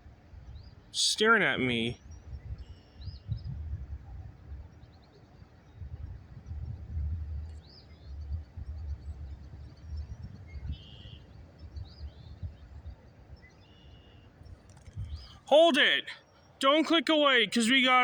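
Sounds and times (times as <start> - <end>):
songbirds chirping: 0.0 - 18.0
wind noise rumble: 2.0 - 13.5, 14.4 - 15.4.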